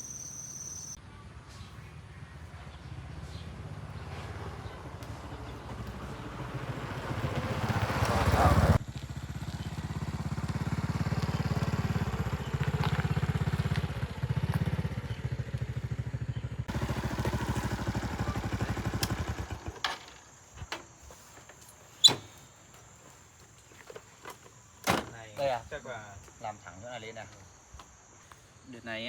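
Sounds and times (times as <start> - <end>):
small engine running: 2.9 - 20.2.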